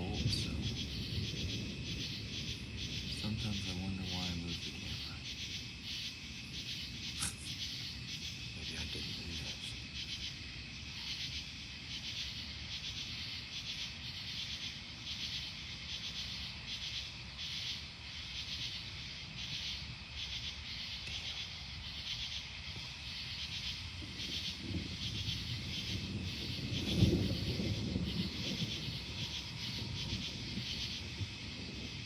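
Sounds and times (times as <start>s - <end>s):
distant thunder rumble: 0.0s - 12.3s, 19.3s - 32.0s
night insects chirping: 0.0s - 32.0s.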